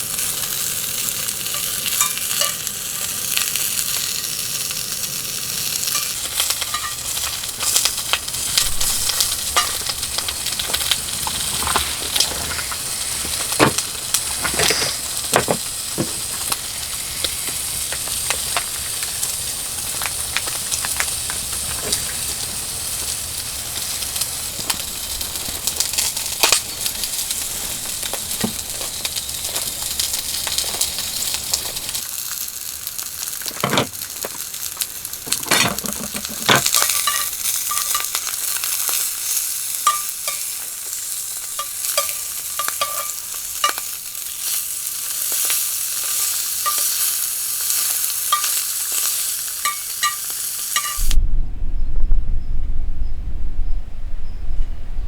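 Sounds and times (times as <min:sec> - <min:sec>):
food sizzling in a pan: 0:00.0 - 0:51.2
utensil knocking and scraping: 0:10.7 - 0:16.6, 0:35.3 - 0:37.3
low rumble: 0:51.0 - 0:55.0.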